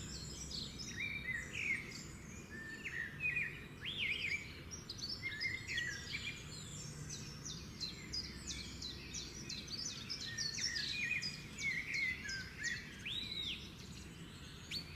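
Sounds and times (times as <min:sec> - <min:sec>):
birds chirping and whistling: 0:07.5 - 0:14.9.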